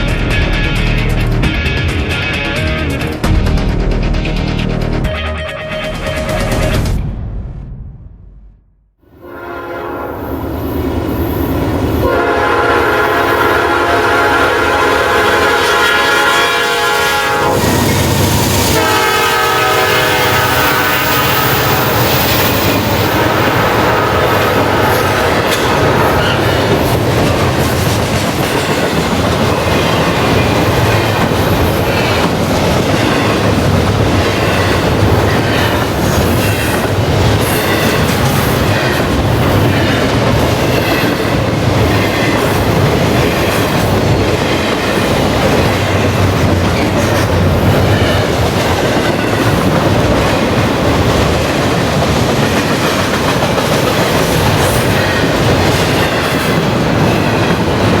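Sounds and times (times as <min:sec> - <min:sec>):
freight train rumbling past: 0:00.0 - 0:08.1, 0:09.0 - 0:58.0
wheels clacking over rail joints: 0:17.4 - 0:58.0.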